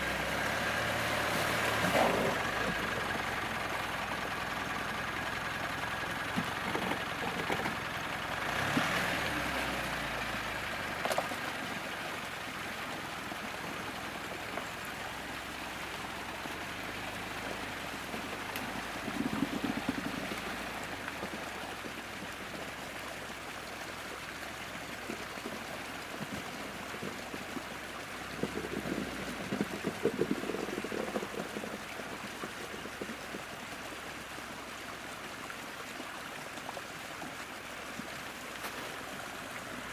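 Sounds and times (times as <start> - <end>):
car engine running low: 0.0 - 36.1
stream running: 0.0 - 39.9.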